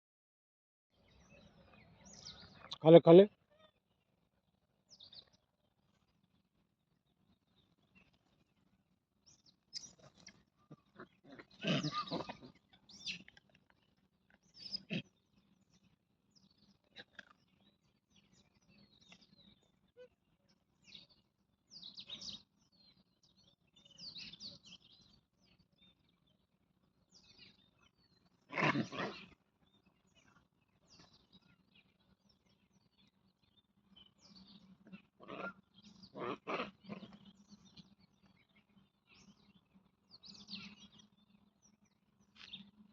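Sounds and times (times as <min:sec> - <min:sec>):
small bird chirps: 0:09.3 - 0:20.2, 0:27.1 - 0:42.8
wild animal calls: 0:10.6 - 0:13.3, 0:14.6 - 0:15.2, 0:28.5 - 0:29.4, 0:34.8 - 0:37.3.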